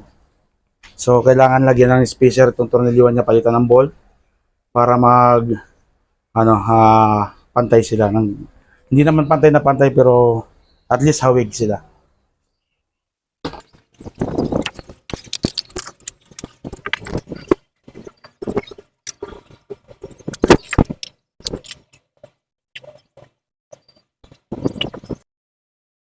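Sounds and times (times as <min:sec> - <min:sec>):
hand tools clicking and rattling: 0:13.6 - 0:25.2.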